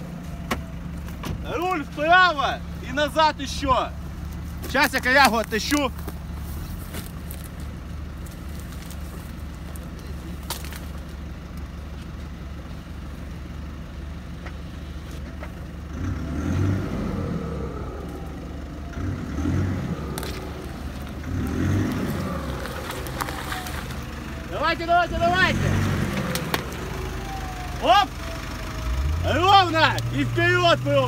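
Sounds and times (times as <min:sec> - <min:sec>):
engine idling: 0:00.0 - 0:31.0
sharp snaps and rustles: 0:04.2 - 0:12.3, 0:20.0 - 0:24.3, 0:25.7 - 0:27.4.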